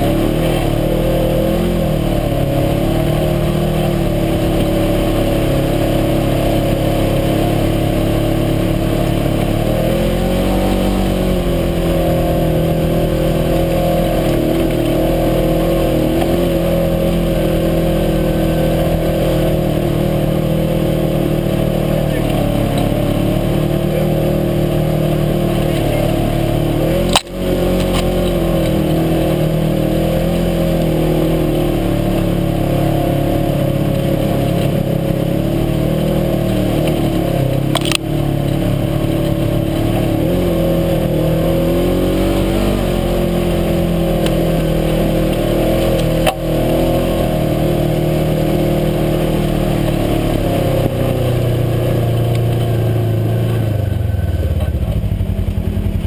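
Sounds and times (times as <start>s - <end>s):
utility vehicle engine running: 0.0s - 56.0s.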